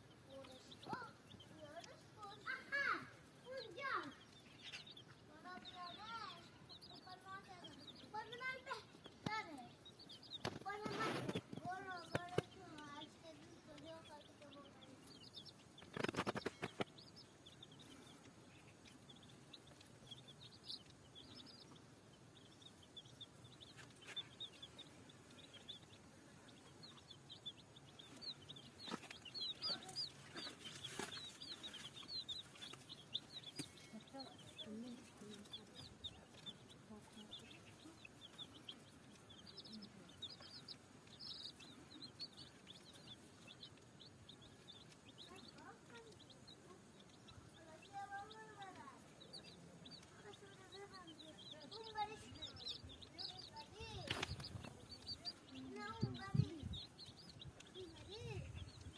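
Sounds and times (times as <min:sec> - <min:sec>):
chicks peeping: 0:00.0 - 0:58.9
sharp clicks: 0:15.8 - 0:17.2.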